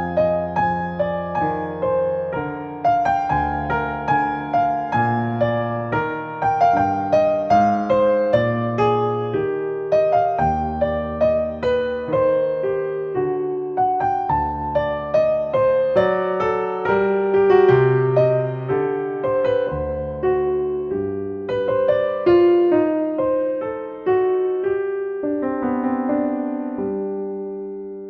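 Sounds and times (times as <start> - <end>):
slow solo piano music: 0.0 - 28.0.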